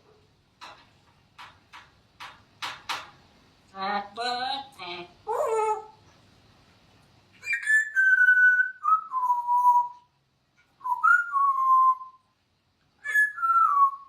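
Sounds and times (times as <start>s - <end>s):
parrot whistling: 7.4s - 10.1s, 10.8s - 12.2s, 13.0s - 14.0s.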